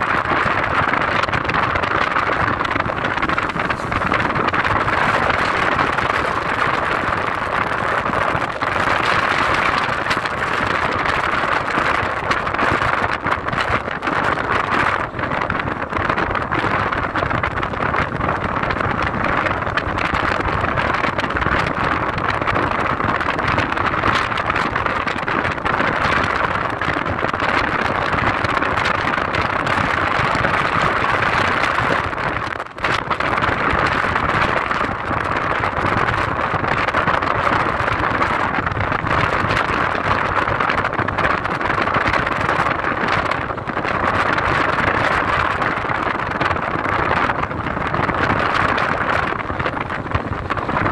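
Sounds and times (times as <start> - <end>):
car tyre and engine noise: 0.0 - 50.9.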